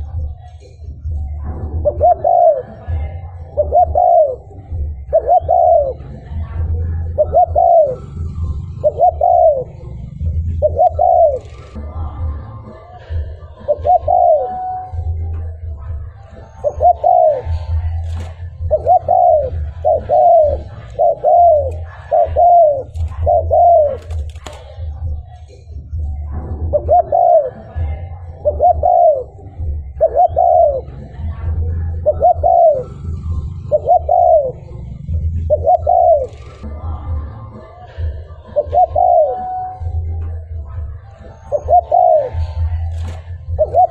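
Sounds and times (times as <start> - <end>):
dove cooing: 0.0 - 43.9.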